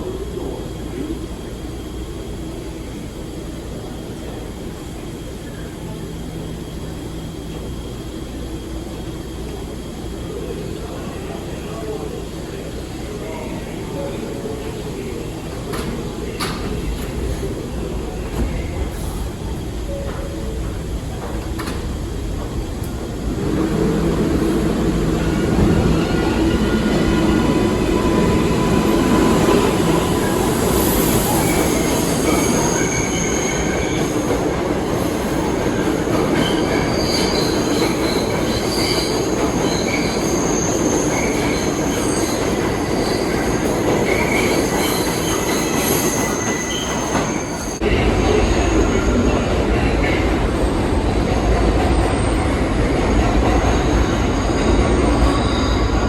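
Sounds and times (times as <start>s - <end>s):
subway train rumble: 0.0s - 56.0s
wheel squeal: 36.4s - 47.8s.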